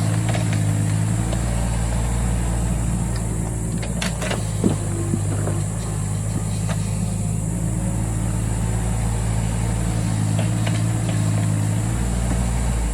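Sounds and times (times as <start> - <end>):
diesel engine running: 0.0 - 12.9
faint clicks and knocks: 3.1 - 6.9.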